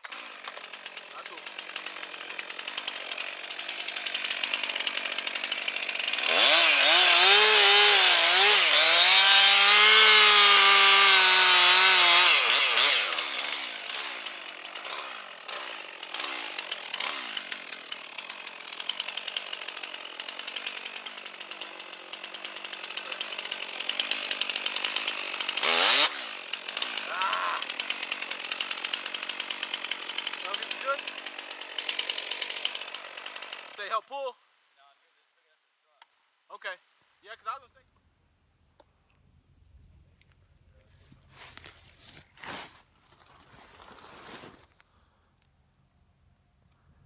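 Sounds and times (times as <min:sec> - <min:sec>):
chainsaw cutting wood: 0:00.0 - 0:34.0, 0:41.2 - 0:44.8.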